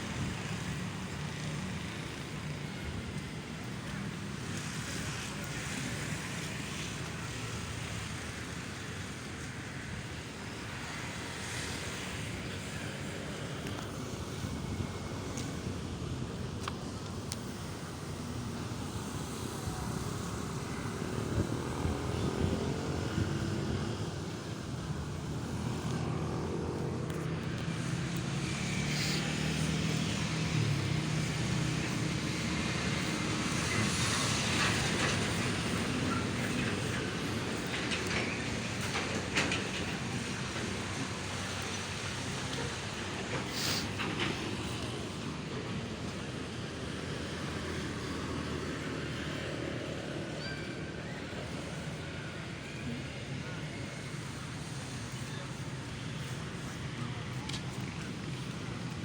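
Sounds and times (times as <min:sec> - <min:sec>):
steady traffic hum: 0:00.0 - 0:59.0
vehicle engine passing: 0:19.6 - 0:45.4.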